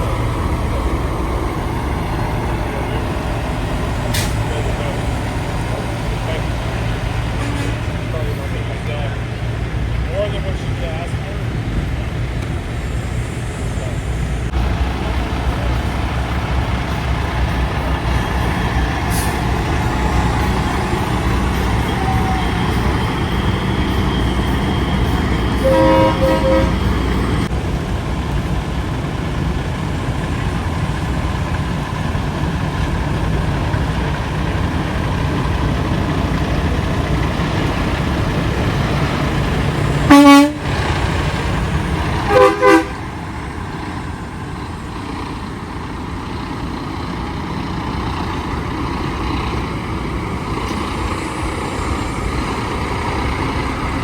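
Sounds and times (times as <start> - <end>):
truck engines rumbling: 0.0 - 54.0
truck horn: 7.2 - 8.1, 18.1 - 27.5, 40.0 - 41.0, 42.2 - 43.1.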